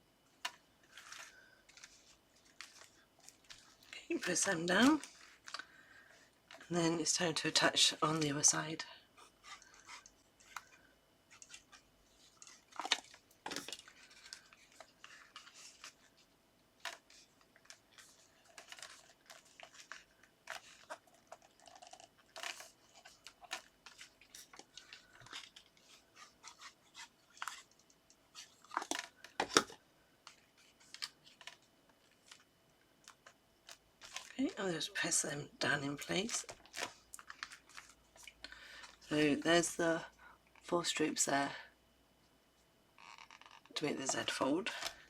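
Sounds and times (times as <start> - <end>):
paper rustling and crackling: 0.4 - 6.7, 9.2 - 32.5, 33.2 - 34.4, 36.0 - 39.1.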